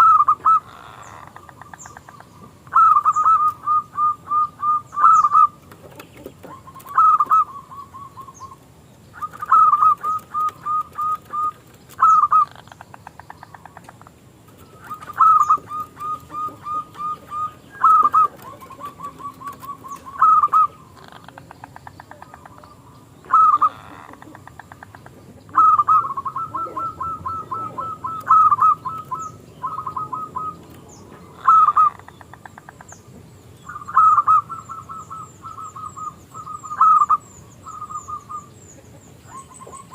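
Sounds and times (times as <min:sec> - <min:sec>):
dove cooing: 0:00.0 - 0:08.6, 0:09.2 - 0:32.6, 0:33.7 - 0:39.9.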